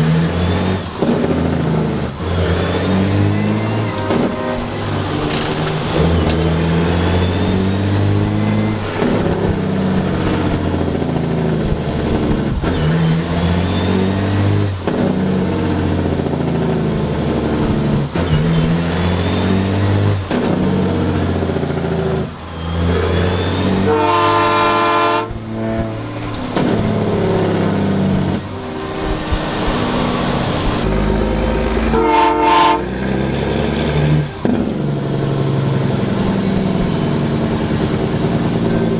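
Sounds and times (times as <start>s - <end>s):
diesel truck engine shifting gears: 0.0s - 38.9s
truck air horn blasting: 2.2s - 9.3s, 23.1s - 37.2s.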